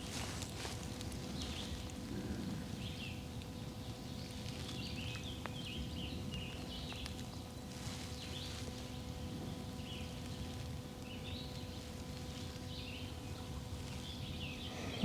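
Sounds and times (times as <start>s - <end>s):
low background rumble: 0.0s - 15.0s
birds chirping: 12.6s - 15.0s.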